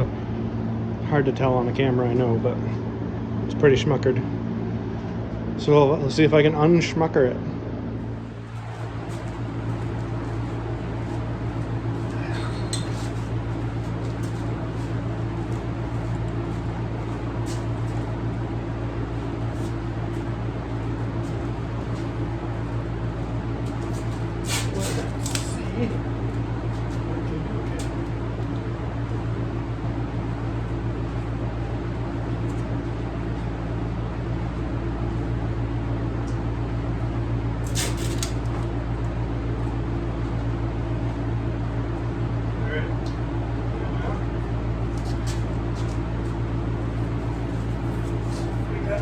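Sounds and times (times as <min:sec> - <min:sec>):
low machine hum: 0:00.0 - 0:49.0.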